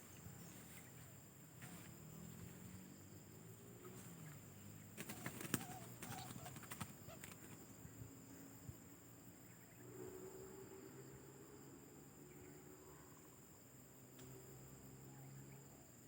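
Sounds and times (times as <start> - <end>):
dove cooing: 5.0 - 7.6.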